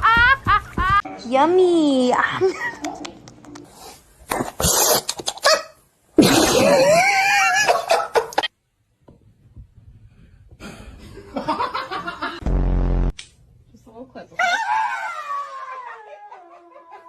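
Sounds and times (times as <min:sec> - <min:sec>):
people laughing: 0:11.0 - 0:12.4.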